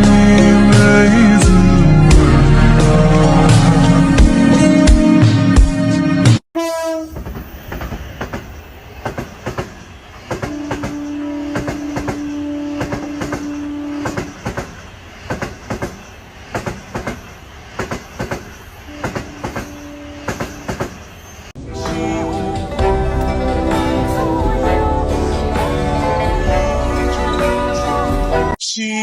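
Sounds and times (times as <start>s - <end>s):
train running rumble: 0.0s - 6.4s, 7.1s - 28.6s
train wheels clacking over rail joints: 7.1s - 21.3s.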